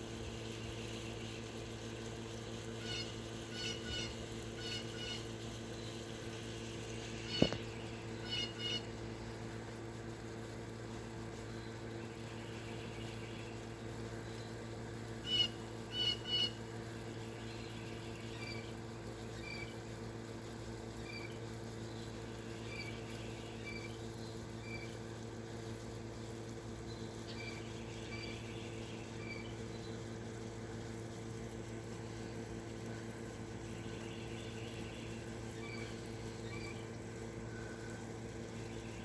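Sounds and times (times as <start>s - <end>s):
steady low hum: 0.0s - 39.0s
bird chirping: 7.2s - 8.8s.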